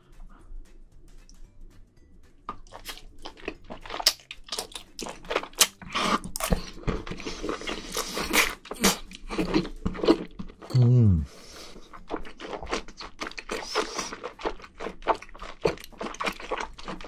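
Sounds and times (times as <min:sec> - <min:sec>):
crunchy bites: 0:02.5 - 0:10.3
slurping and chewing food: 0:02.5 - 0:17.0.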